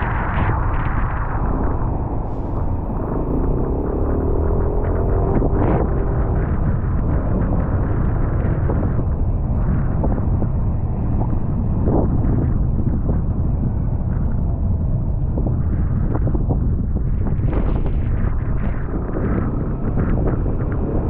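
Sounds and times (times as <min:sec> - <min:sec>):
road noise: 0:00.0 - 0:21.0
wind rumble on microphone: 0:00.0 - 0:21.0.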